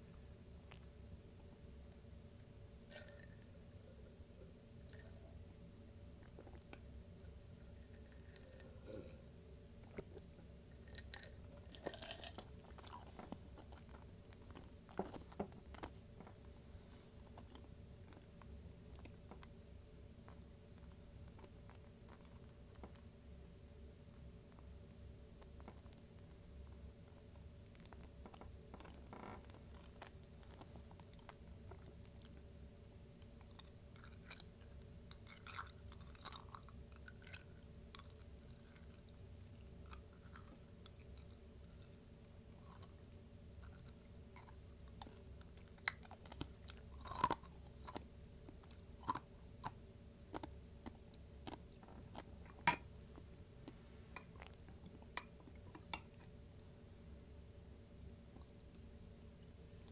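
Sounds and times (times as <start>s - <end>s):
faint steady hum: 0.0s - 59.9s
chewing and crunching: 9.9s - 23.1s, 25.4s - 32.5s, 33.1s - 56.7s.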